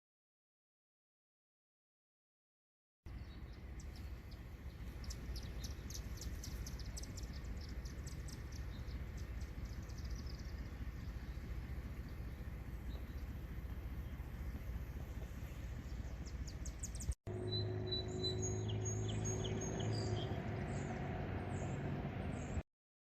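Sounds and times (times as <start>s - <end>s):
high bird chirps: 3.1s - 13.3s, 15.9s - 22.6s
steady low rumble: 3.1s - 22.6s.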